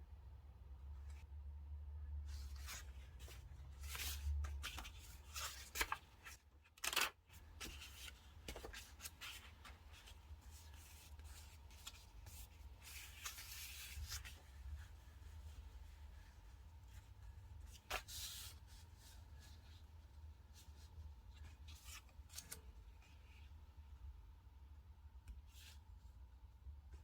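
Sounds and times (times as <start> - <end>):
paper rustling: 2.3 - 17.0.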